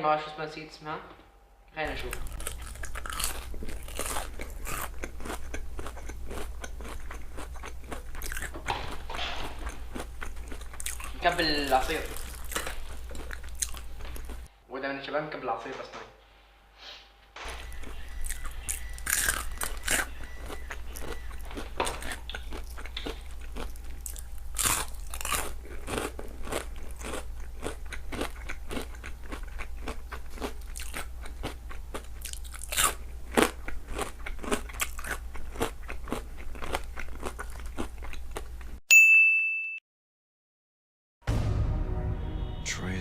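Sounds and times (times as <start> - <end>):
crunching and chewing: 1.9 - 14.5, 17.4 - 38.8
sharp ding: 38.9 - 39.8
low hum: 41.3 - 43.0.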